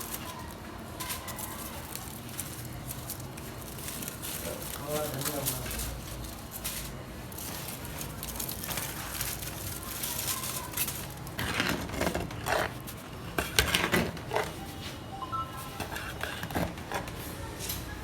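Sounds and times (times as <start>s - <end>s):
pots and utensils scraping: 7.4s - 14.8s, 15.6s - 17.4s.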